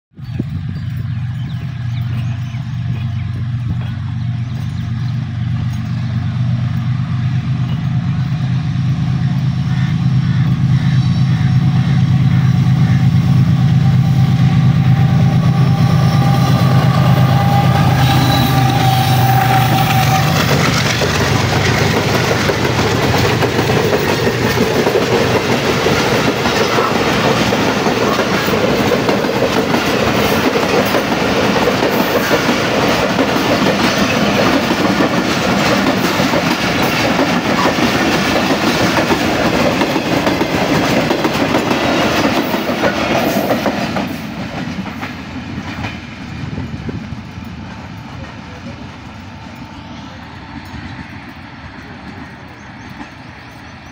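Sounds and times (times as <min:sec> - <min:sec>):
locomotive engine hum: 0:00.2 - 0:53.9
train wheels clattering over rail joints: 0:16.8 - 0:49.7.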